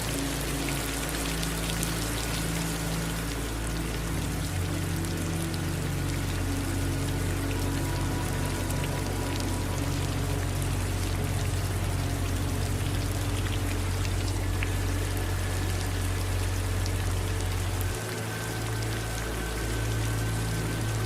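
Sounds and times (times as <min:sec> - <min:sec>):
low steady rumble: 0:00.0 - 0:21.0
steady rain: 0:00.0 - 0:21.0.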